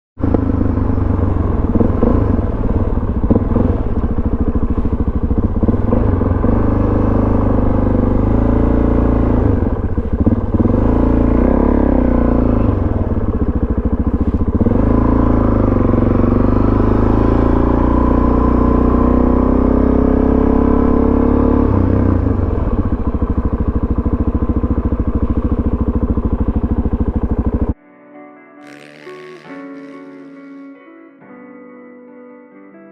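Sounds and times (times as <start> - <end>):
motorcycle engine revving: 0.2 - 27.8, 28.6 - 30.8
soft piano music: 27.8 - 32.9.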